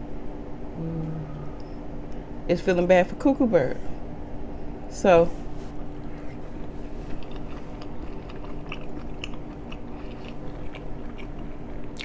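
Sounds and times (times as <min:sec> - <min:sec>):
steady low hum: 0:00.0 - 0:12.0
person chewing food: 0:05.8 - 0:12.0.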